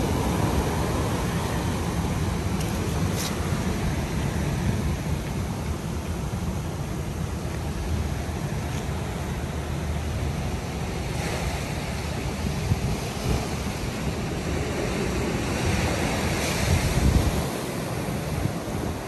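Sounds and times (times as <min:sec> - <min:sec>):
ocean surf breaking: 0:00.0 - 0:19.0
wind buffeting microphone: 0:11.2 - 0:19.0.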